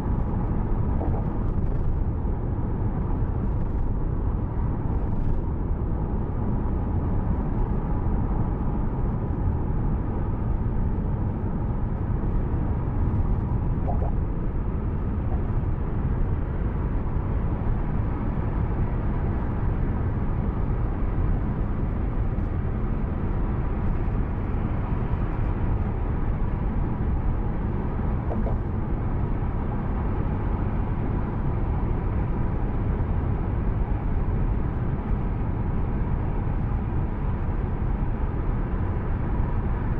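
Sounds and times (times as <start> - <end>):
car driving rumble: 0.0 - 18.2, 20.4 - 29.8.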